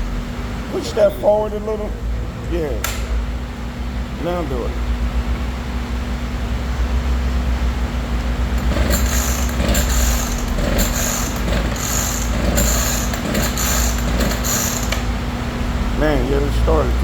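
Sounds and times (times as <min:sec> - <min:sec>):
engine turning over: 0:08.3 - 0:15.4
chainsaw starter rope pulls: 0:08.6 - 0:15.1.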